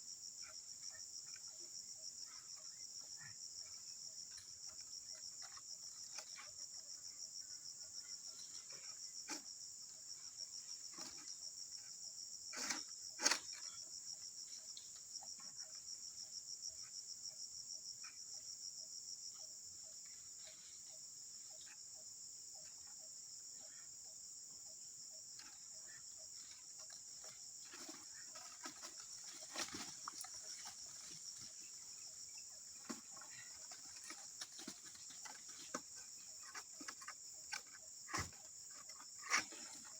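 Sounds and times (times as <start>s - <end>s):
insect chorus trilling: 0.0s - 39.9s
clicks and rustles: 26.8s - 31.7s.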